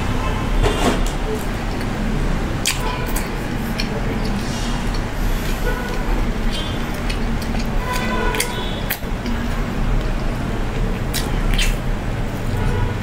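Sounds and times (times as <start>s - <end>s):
steady low hum: 0.0s - 13.0s
chewing fried chicken: 1.2s - 13.0s
wet mouth clicks and smacks: 2.6s - 12.5s.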